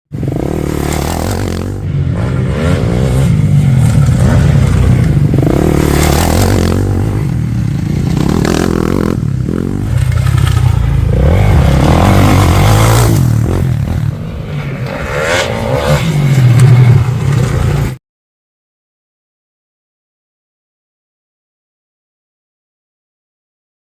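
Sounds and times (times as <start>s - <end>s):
motorcycle engine revving: 0.2s - 18.0s.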